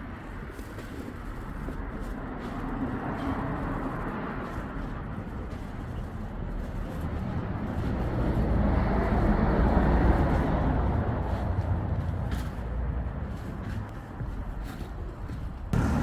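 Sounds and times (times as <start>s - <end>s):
road traffic passing: 0.1s - 16.0s
approaching vehicle engine rumble: 15.5s - 16.0s.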